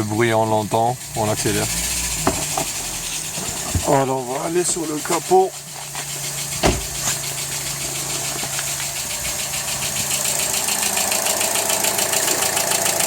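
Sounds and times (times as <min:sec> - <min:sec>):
car engine running: 0:00.0 - 0:13.0
rapid engine knocking: 0:00.0 - 0:13.0
thump: 0:02.2 - 0:02.7, 0:06.6 - 0:07.2.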